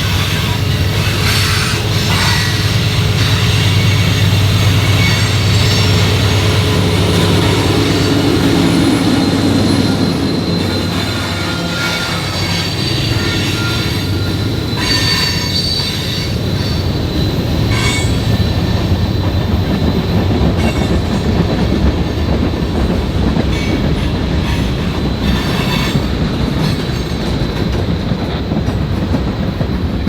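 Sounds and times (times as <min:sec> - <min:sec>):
train wheels rumbling on rails: 0:00.0 - 0:30.0
high-pitched wheel squeals: 0:01.0 - 0:19.4.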